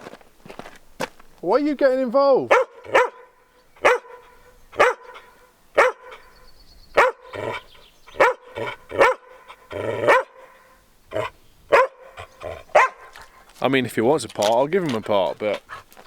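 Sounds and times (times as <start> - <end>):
dog barking: 2.5 - 6.3, 7.0 - 13.3.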